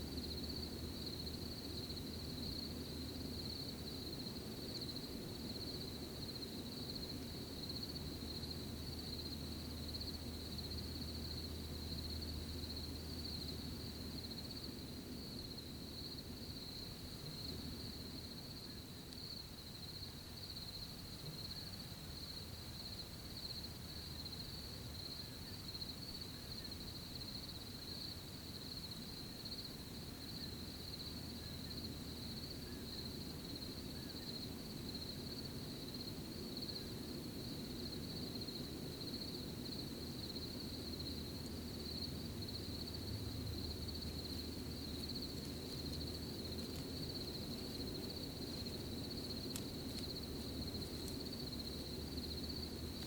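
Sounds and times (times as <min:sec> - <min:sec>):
crickets trilling: 0:00.0 - 0:53.0
low background rustle: 0:40.4 - 0:53.0.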